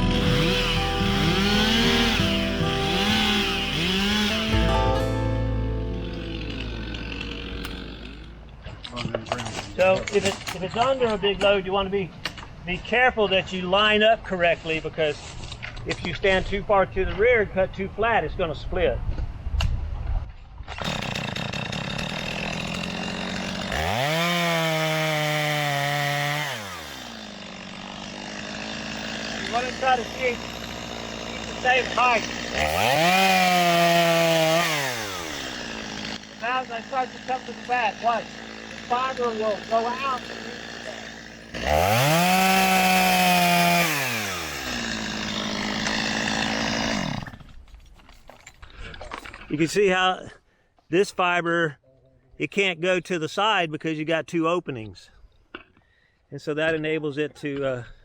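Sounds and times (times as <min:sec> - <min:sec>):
chainsaw idling and revving: 0:00.0 - 0:10.6, 0:20.8 - 0:47.6.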